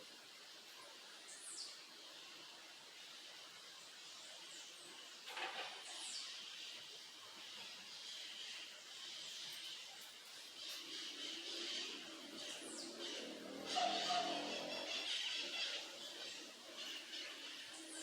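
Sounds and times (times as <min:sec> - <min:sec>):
faint stream water hiss: 0:00.0 - 0:18.0
songbird high downward calls: 0:10.7 - 0:18.0.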